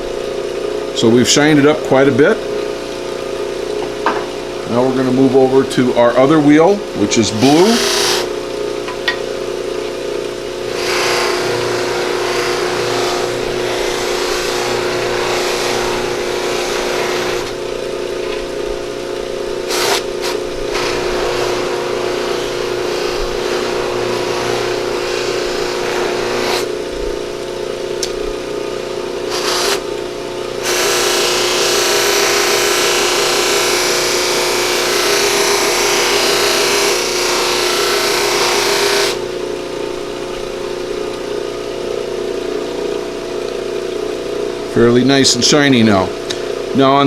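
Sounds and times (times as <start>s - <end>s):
buffing wheel motor hum: 6.6s - 9.2s, 10.4s - 28.2s, 28.8s - 41.4s
antler hissing against buffing wheel: 7.5s - 8.3s.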